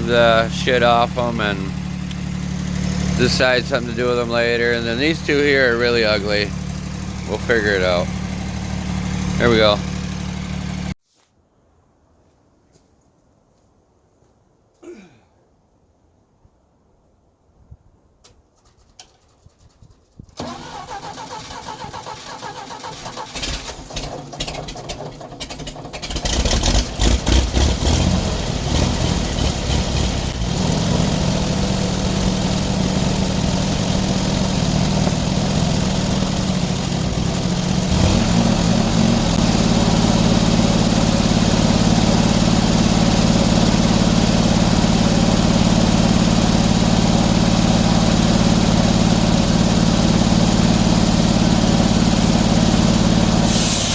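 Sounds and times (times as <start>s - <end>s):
engine cranking and starting: 18.6s - 53.9s.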